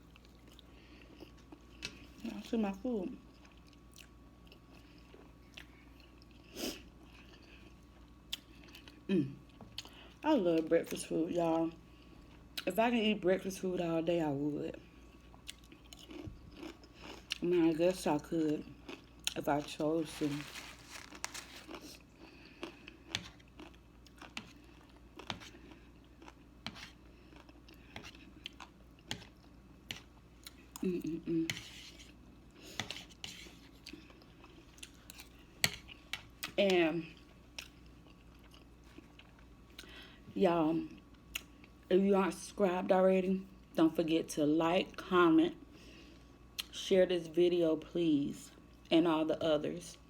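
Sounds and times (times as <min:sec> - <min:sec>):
person chewing: 0:00.1 - 0:02.2, 0:03.3 - 0:09.1, 0:15.1 - 0:17.4, 0:20.2 - 0:36.6, 0:37.2 - 0:40.0
chewing and biting food: 0:15.2 - 0:17.4, 0:20.4 - 0:30.9
crunch: 0:20.0 - 0:22.0.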